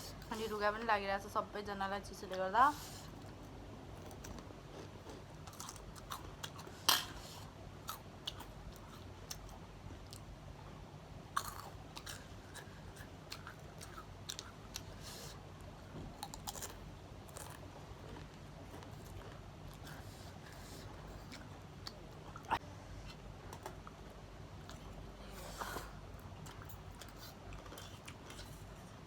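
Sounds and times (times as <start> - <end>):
chewing crunchy snacks: 3.2 - 7.2, 7.8 - 10.3, 11.3 - 15.4, 16.0 - 25.0, 25.8 - 29.0.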